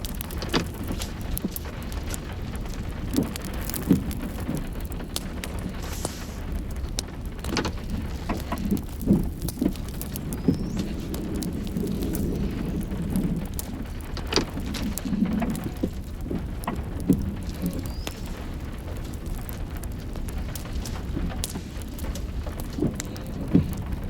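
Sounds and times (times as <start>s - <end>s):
irregular ticks and knocks: 0.0s - 24.0s
steady low rumble: 0.0s - 24.0s.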